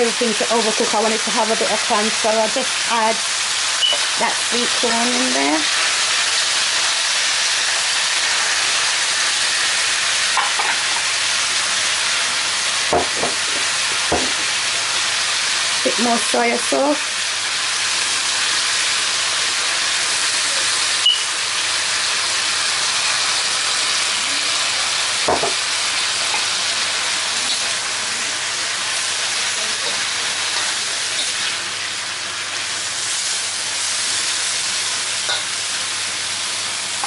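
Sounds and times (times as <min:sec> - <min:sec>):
food sizzling in a wok: 0:00.0 - 0:37.0
knock: 0:12.9 - 0:14.4, 0:25.3 - 0:25.6.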